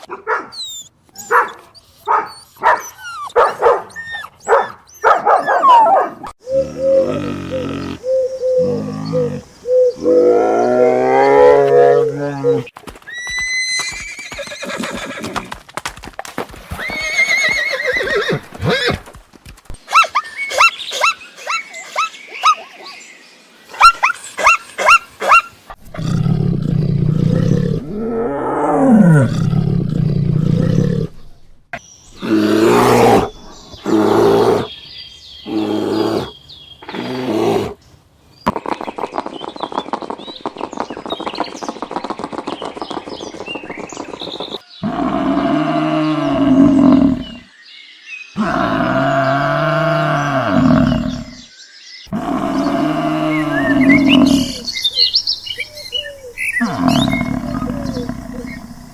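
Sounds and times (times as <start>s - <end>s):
animal calls and cries: 0.0s - 15.4s, 19.8s - 31.4s, 32.1s - 37.8s, 48.3s - 58.9s.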